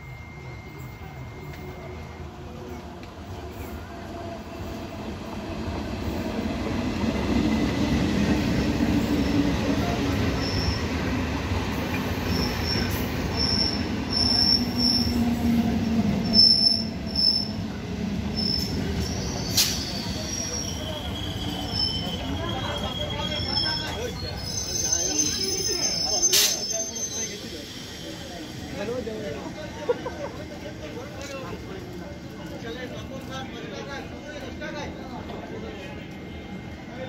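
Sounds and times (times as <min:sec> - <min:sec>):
train wheel and rail rumble: 0:00.0 - 0:37.0
wheel squeals: 0:10.2 - 0:11.0, 0:12.2 - 0:15.2, 0:18.4 - 0:28.5.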